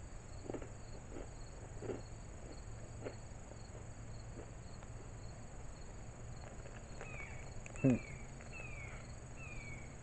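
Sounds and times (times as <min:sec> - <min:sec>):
crickets chirping: 0:00.0 - 0:10.0
high insect drone: 0:00.0 - 0:10.0
crunchy snack chewing: 0:00.3 - 0:05.3, 0:06.3 - 0:08.6.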